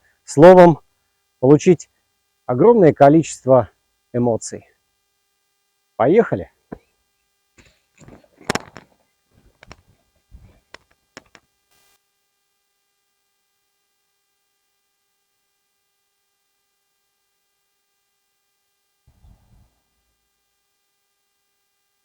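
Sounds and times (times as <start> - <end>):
faint electrical hum: 0.0 - 22.0
sharp clicks and knocks: 8.0 - 11.4.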